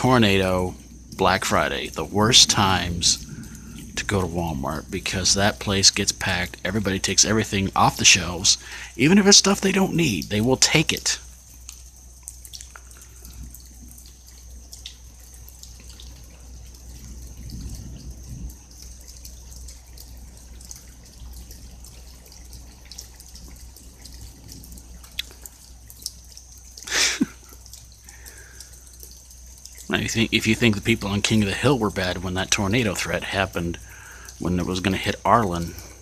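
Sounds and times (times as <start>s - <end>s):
low steady hum: 0.0s - 36.0s
rain dripping: 0.0s - 36.0s.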